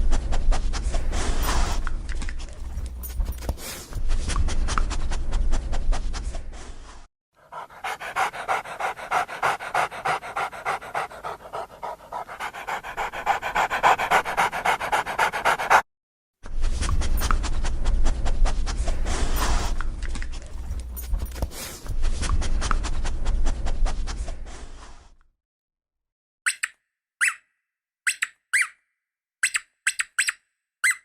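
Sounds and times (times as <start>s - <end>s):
dog panting: 7.4s - 15.8s.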